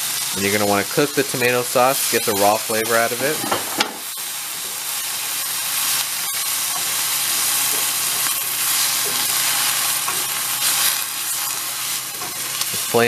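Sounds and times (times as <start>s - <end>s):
rice and sauce sizzling in a pan: 0.0s - 13.0s
spatula stirring: 5.8s - 12.9s.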